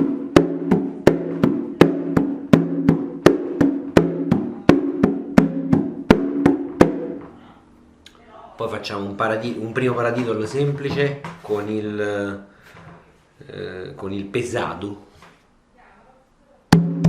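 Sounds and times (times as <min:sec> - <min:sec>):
hand drum slaps: 0:00.0 - 0:07.3.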